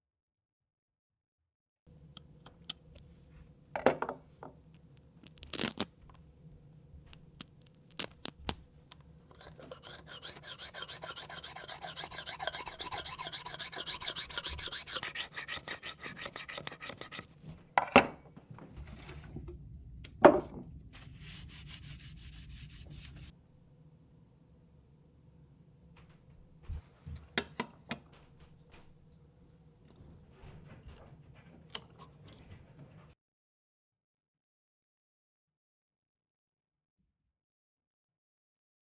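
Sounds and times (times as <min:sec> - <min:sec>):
rubbing strokes on arrow shaft: 0:07.2 - 0:17.6, 0:21.0 - 0:23.3.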